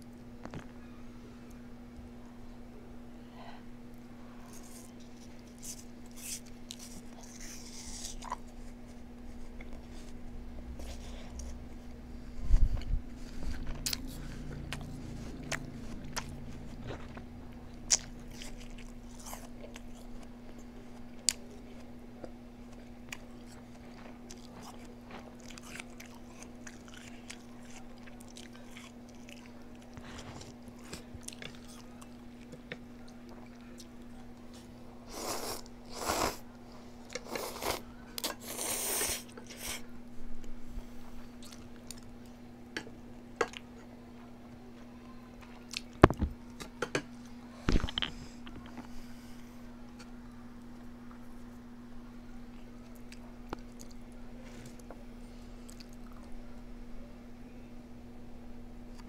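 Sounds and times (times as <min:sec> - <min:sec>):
steady low hum: 0:00.0 - 0:59.0
person chewing crunchy food: 0:12.8 - 0:33.9, 0:41.4 - 0:42.2.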